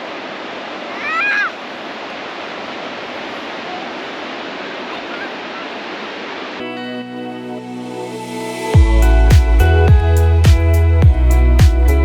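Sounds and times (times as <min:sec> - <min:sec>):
sea surf rushing: 0:00.0 - 0:11.7
background music sustained tones: 0:06.6 - 0:12.0.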